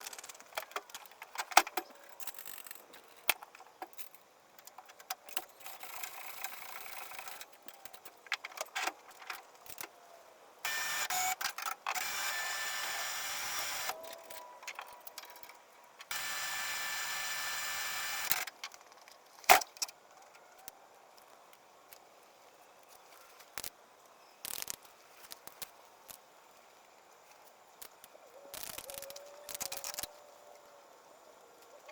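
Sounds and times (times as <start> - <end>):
small electric motor running: 10.7 - 14.0, 16.1 - 18.4.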